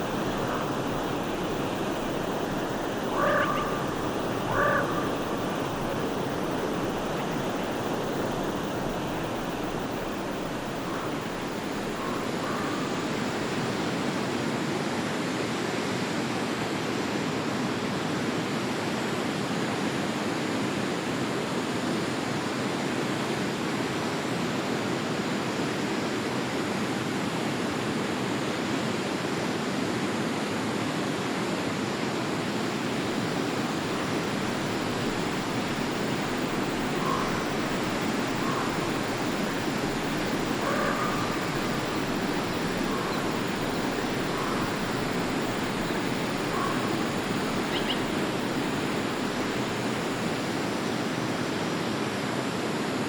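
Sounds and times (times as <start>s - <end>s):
stream flowing: 0.0s - 15.3s, 30.9s - 53.0s.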